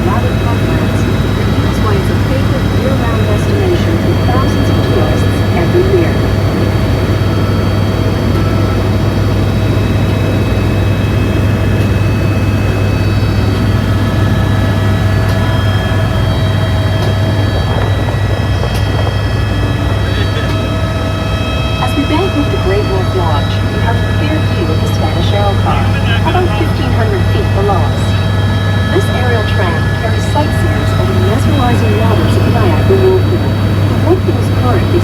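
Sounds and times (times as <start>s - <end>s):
helicopter engine and rotor drone: 0.0s - 35.0s
high-pitched turbine whines: 0.0s - 35.0s.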